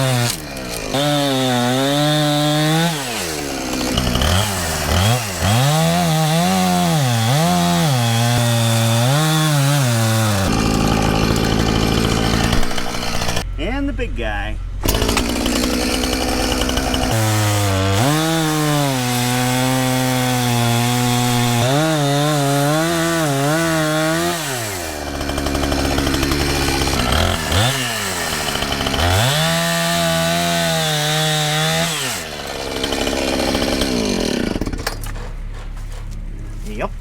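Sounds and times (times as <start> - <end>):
chainsaw cutting wood: 0.0 - 13.5, 14.8 - 35.6.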